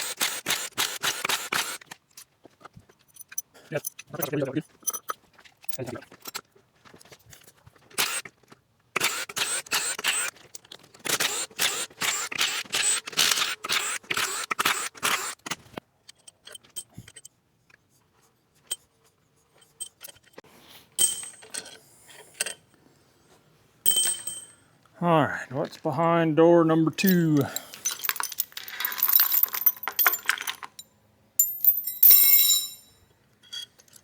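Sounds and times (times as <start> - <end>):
ringing metallic clinks: 23.9 - 24.6, 31.4 - 33.8.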